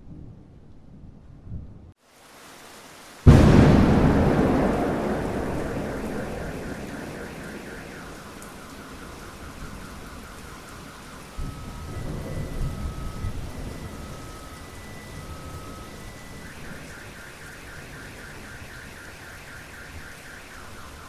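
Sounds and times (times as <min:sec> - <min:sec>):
steady rain: 0:02.0 - 0:21.0
thunder rumbling: 0:03.3 - 0:18.2.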